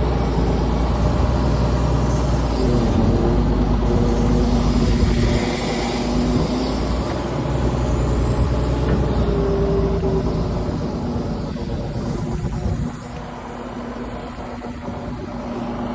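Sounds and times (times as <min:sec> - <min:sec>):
heavy machine engine rumbling: 0:00.0 - 0:15.9.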